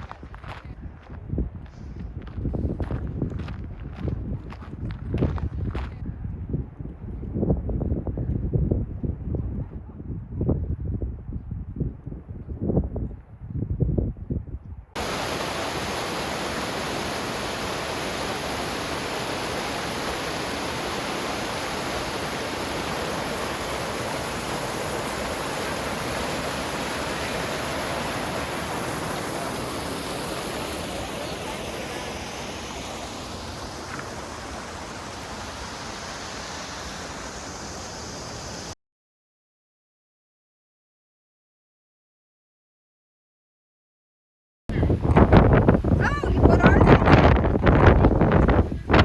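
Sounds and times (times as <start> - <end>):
flowing water rushing: 15.0 - 38.8.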